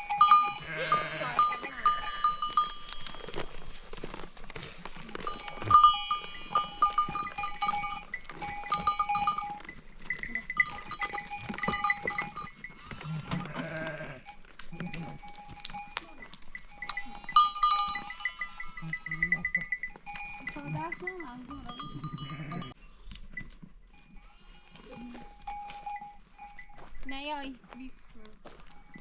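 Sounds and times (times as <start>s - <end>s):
sheep and goats bleating: 0.0s - 2.8s, 5.1s - 22.8s
livestock bells clinking: 0.0s - 29.0s.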